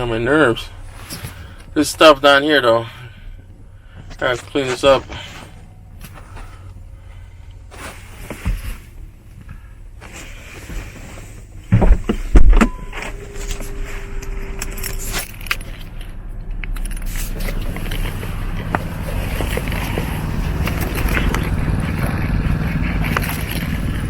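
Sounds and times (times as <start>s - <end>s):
steady low hum: 0.0s - 24.0s
heavy thumps: 11.6s - 15.1s
clinking and rattling handling: 12.2s - 24.0s.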